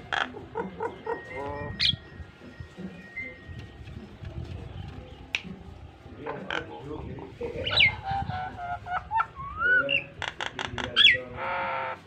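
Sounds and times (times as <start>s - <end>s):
myna bird calls and whistles: 0.8s - 2.3s, 3.0s - 5.5s.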